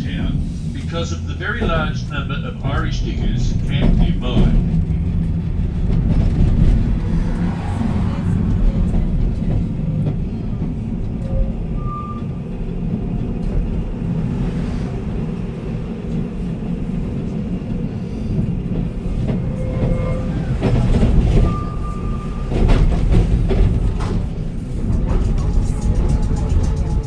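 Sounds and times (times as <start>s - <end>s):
tram rumbling on rails: 0.0s - 27.0s
clacks: 22.5s - 27.0s.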